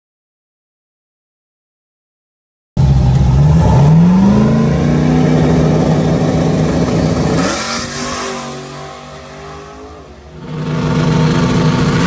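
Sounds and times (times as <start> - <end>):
drag car engine revving: 2.8 - 12.0.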